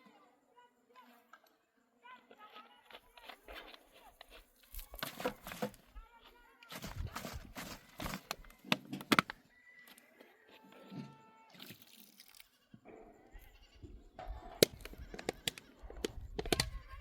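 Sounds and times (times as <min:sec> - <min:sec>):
sharp clicks and knocks: 0:06.8 - 0:09.4, 0:14.2 - 0:16.8
sheep or goats bleating: 0:09.6 - 0:11.6, 0:12.5 - 0:17.0.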